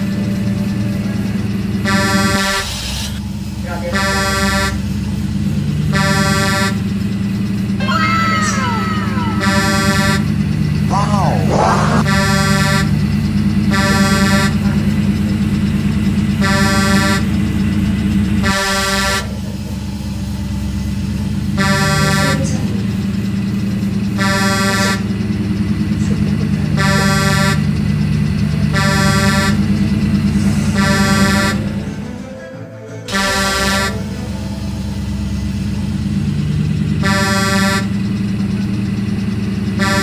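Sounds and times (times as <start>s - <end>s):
engine humming: 0.0s - 40.0s
vehicle horn blasts: 9.0s - 10.4s, 26.7s - 27.7s, 30.7s - 32.0s, 33.1s - 34.2s, 37.0s - 37.9s.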